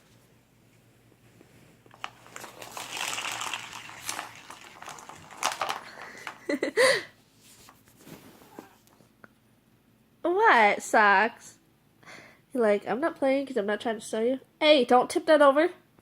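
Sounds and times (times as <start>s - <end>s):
toy crinkling and rustling: 1.8s - 6.8s.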